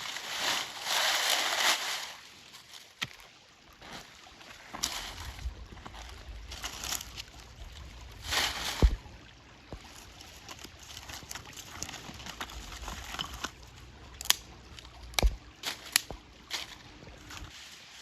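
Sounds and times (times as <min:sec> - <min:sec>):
water sloshing and trickling: 0:00.0 - 0:18.0
water splash: 0:07.9 - 0:09.8.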